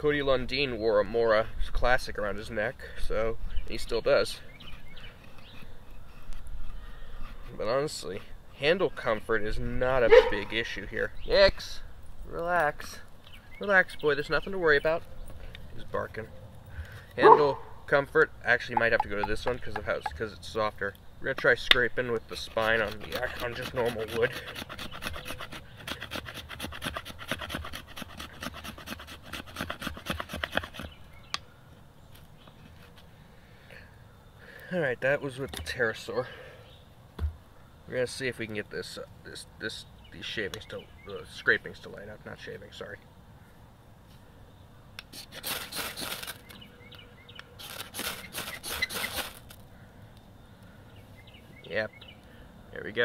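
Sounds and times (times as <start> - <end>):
knife spine scraping wood: 4.2 - 8.3, 22.2 - 31.0, 45.0 - 46.6, 47.6 - 49.6.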